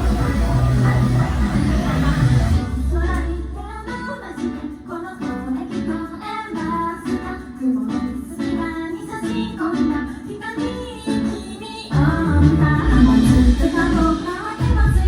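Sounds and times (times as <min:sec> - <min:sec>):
heavy bass: 0:00.0 - 0:04.0, 0:11.9 - 0:15.0
guitar picking repeating notes: 0:00.0 - 0:14.2.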